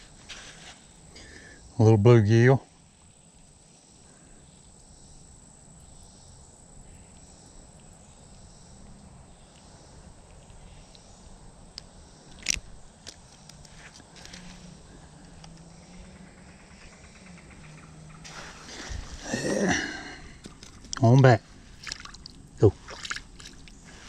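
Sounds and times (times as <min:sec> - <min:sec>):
crickets chirping: 0:00.0 - 0:24.0
light ticks: 0:07.1 - 0:11.1, 0:11.7 - 0:14.4.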